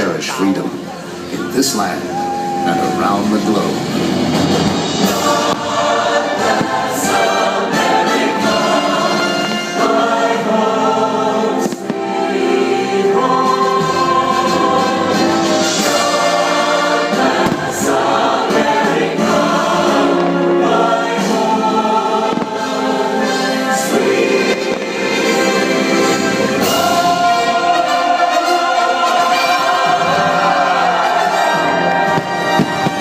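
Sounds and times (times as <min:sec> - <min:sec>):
choir with instrumental music: 0:03.3 - 0:33.0
sharp firework cracks: 0:22.2 - 0:23.5.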